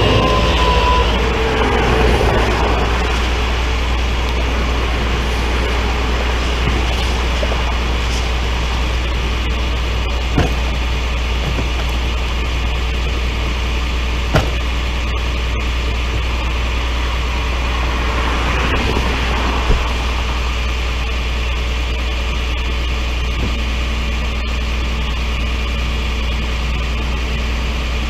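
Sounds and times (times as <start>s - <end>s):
vehicle engine droning: 0.0s - 28.0s
brief knocks: 10.4s - 10.8s, 14.3s - 14.7s.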